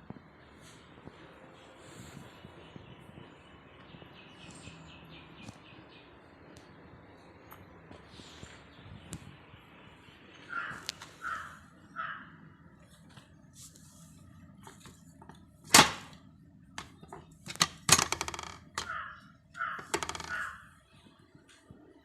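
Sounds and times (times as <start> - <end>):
metal objects clinking and knocking: 16.8 - 19.0, 19.8 - 20.5.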